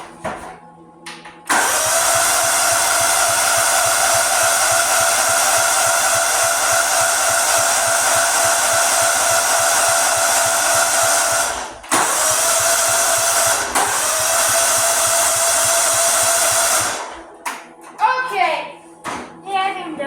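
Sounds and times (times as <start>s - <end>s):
starter cranking lawnmower engine: 1.5s - 17.2s.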